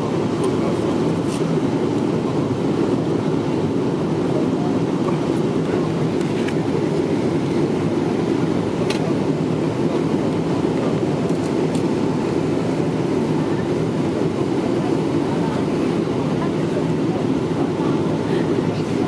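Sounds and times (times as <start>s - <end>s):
airplane cabin engine rush: 0.0s - 19.0s.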